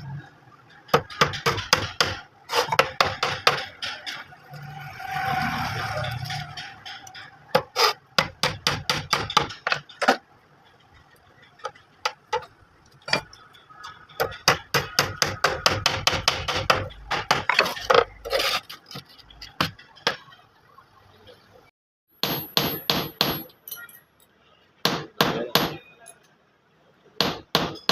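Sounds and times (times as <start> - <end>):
hammer striking nails into wood: 7.6 - 9.8, 22.2 - 23.5, 24.8 - 25.8, 27.2 - 27.9.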